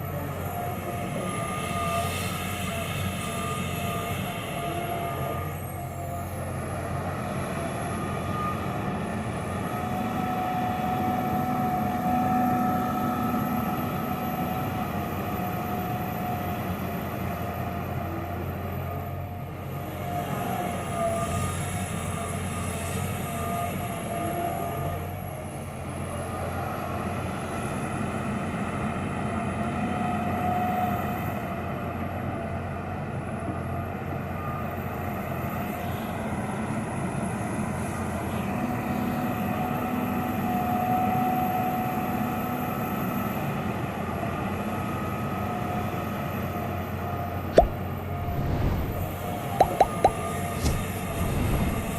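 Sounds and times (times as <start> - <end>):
excavator diesel engine running: 0.0 - 30.8
sharp knock: 49.6 - 50.9.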